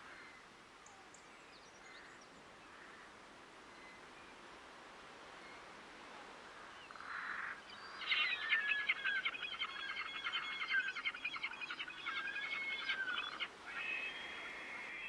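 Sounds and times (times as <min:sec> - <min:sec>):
faint outdoor hiss: 0:00.0 - 0:15.0
songbird chirps and trills: 0:06.8 - 0:15.0.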